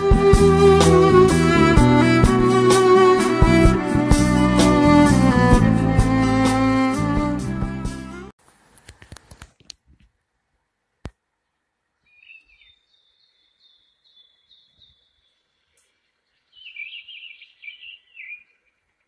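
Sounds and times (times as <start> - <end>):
songbird twittering: 12.0 - 19.0.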